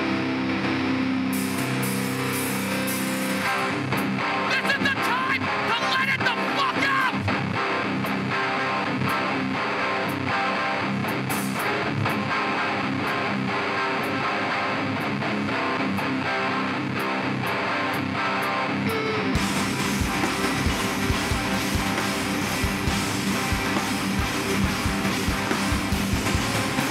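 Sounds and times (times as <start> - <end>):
distorted electric guitars: 0.0 - 26.9
drums and cymbals: 1.4 - 4.2, 11.2 - 12.1, 19.4 - 26.9.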